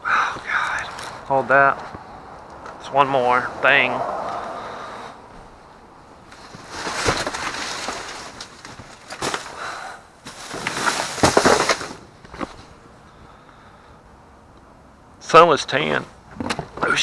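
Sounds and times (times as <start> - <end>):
plastic bags rustling: 6.2 - 12.7.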